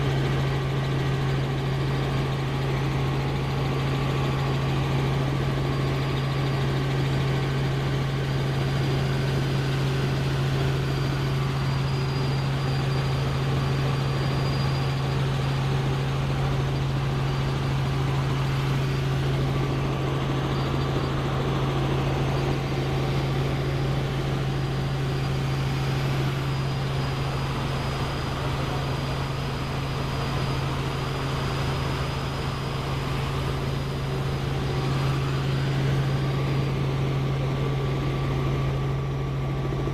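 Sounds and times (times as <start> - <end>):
faint high whine: 0.0 - 39.9
helicopter engine and rotors: 0.0 - 39.9.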